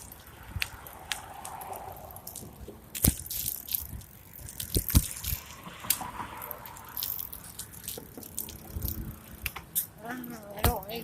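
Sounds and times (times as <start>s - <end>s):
bicycle rattling over rough ground: 0.0s - 11.0s.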